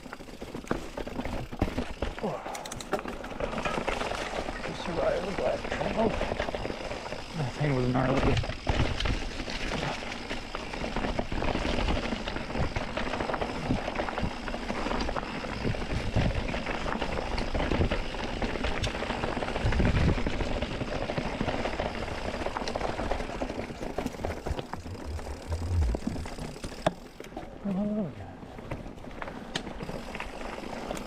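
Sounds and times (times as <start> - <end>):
tyres clattering on rocky dirt: 0.0 - 7.3
bike knocks and rattles: 0.0 - 27.5.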